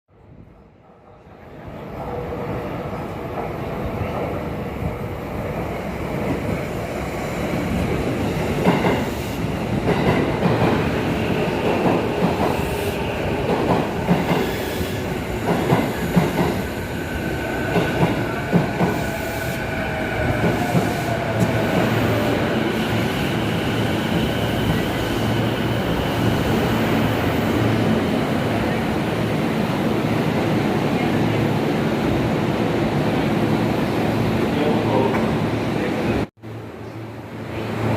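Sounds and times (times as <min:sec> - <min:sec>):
train wheels clattering on rails: 0:08.4 - 0:16.7.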